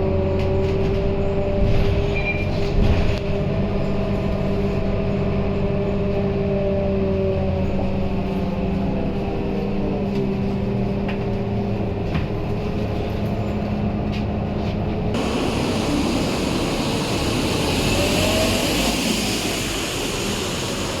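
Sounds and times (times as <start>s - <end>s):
bus engine running: 0.0s - 21.0s
loud rushing noise: 15.2s - 21.0s.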